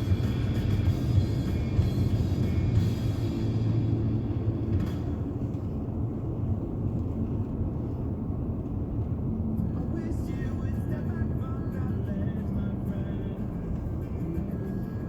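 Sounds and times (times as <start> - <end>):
background music: 0.0 - 4.9
car driving on snow: 0.0 - 15.0.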